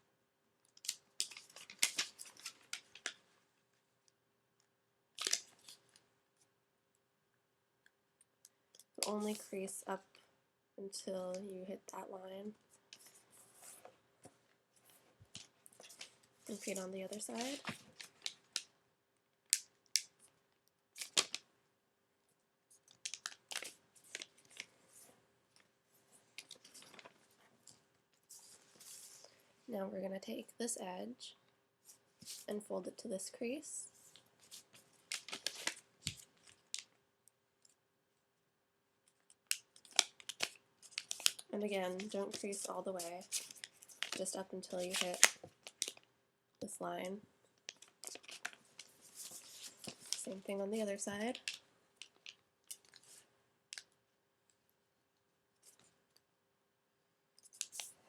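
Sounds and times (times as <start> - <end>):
paper being folded by hand: 0.8 - 3.2, 14.8 - 18.7, 22.7 - 25.1, 26.4 - 29.3, 34.1 - 36.9, 39.4 - 46.0, 47.7 - 53.2.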